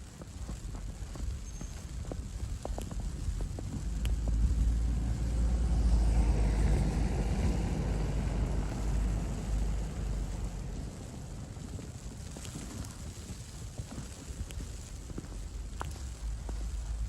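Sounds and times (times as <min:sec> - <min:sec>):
car driving past on snow: 0:03.6 - 0:12.1.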